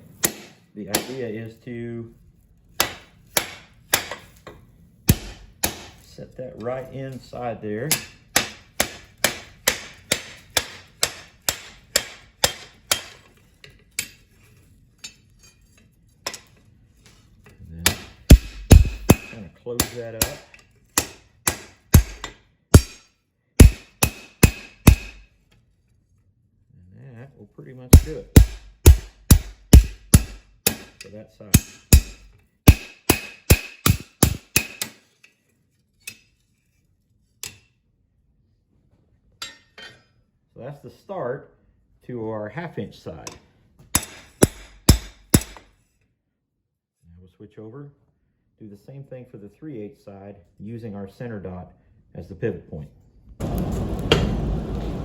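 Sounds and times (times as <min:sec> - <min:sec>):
hammer striking steel on anvil: 0:00.1 - 0:01.3, 0:02.8 - 0:04.5, 0:05.1 - 0:06.1, 0:07.9 - 0:13.2, 0:17.8 - 0:25.3, 0:27.9 - 0:35.0, 0:43.3 - 0:45.7.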